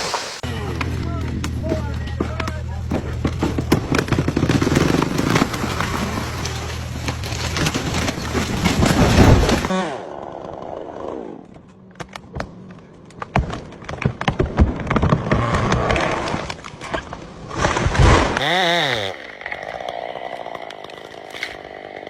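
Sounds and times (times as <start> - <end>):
wood cracking and snapping: 0.8 - 9.7, 11.9 - 22.0
chainsaw cutting wood: 3.2 - 10.7, 14.9 - 16.7, 17.5 - 22.0.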